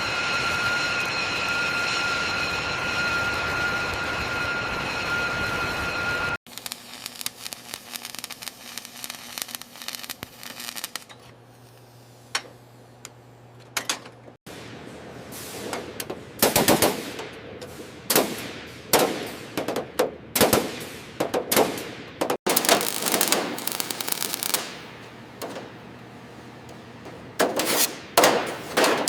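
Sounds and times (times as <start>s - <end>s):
sharp knocks and clatter: 22.5s - 29.0s.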